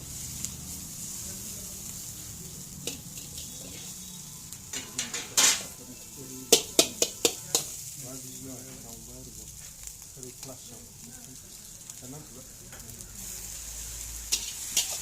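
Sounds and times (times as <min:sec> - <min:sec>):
noodles sizzling in a wok: 0:00.0 - 0:15.0
spatula clanking on pan: 0:02.8 - 0:03.9, 0:04.7 - 0:05.8, 0:06.5 - 0:07.8, 0:14.3 - 0:15.0
metal spatula scraping a pan: 0:02.8 - 0:08.9, 0:13.2 - 0:15.0.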